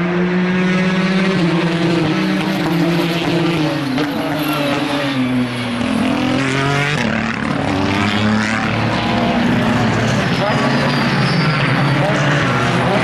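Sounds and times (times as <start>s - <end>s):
race car engines revving past: 0.0s - 13.0s.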